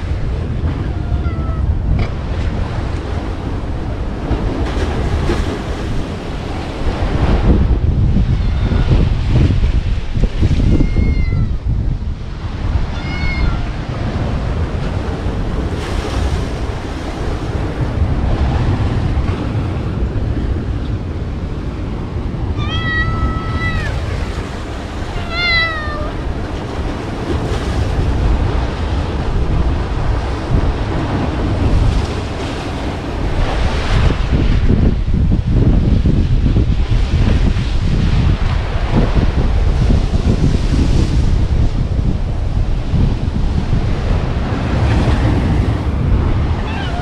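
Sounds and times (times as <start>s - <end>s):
wind rumbling on microphone: 0.0s - 47.0s
high-pitched animal calls: 22.6s - 24.4s, 25.1s - 26.2s, 46.6s - 47.0s.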